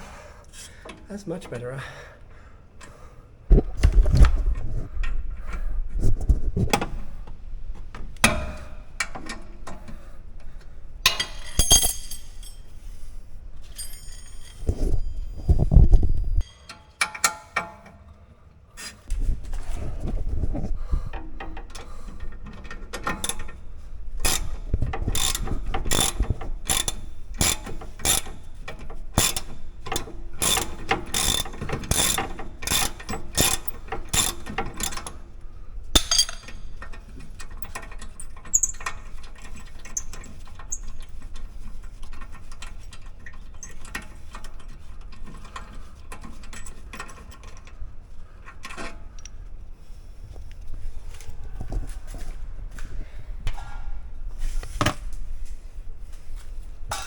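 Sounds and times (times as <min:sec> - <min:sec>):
socket ratchet clicking: 0:24.2 - 0:35.2.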